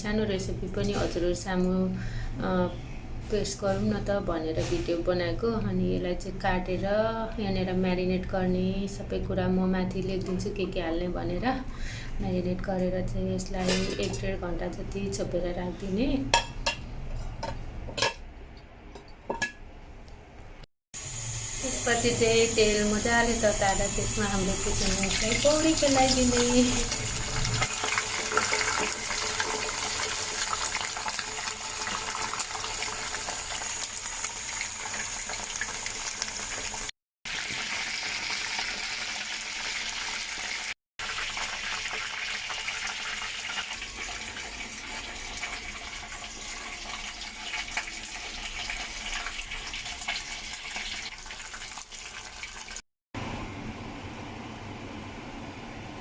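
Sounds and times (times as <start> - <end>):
chicken deep-frying in oil: 21.0 - 56.0.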